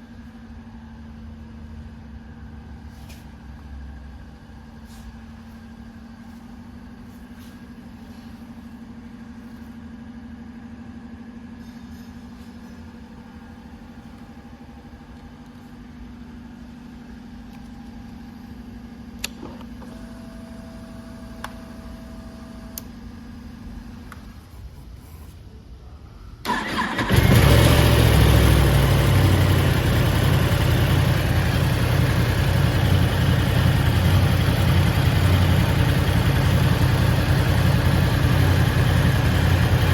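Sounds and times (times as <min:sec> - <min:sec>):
motorcycle engine starting and idling: 0:26.4 - 0:39.9.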